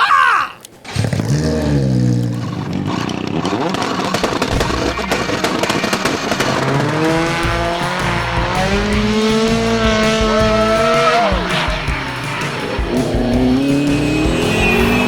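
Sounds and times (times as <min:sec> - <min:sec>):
car engine revving: 0:00.9 - 0:15.0
tyre squeal: 0:02.5 - 0:15.0.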